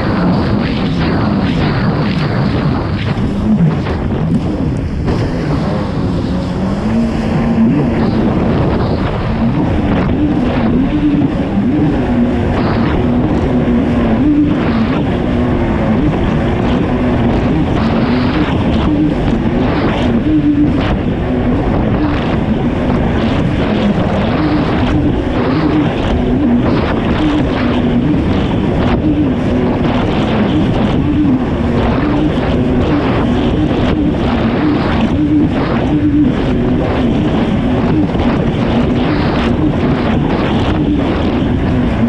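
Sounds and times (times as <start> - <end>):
jet ski engine revving: 0.0 - 42.0
wind and spray rushing: 0.0 - 42.0.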